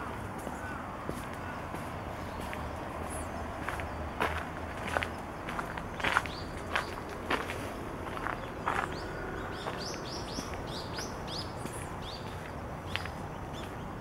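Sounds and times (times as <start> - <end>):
footsteps on path: 0.3 - 14.0
bird chirping: 8.1 - 14.0.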